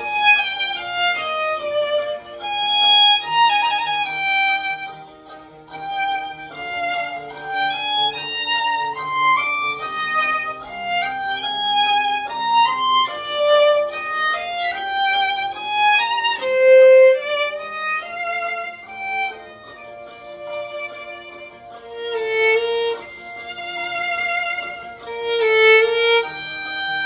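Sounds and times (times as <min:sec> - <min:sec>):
lower accompanying notes: 0:00.0 - 0:27.0
violin melody: 0:00.0 - 0:27.0.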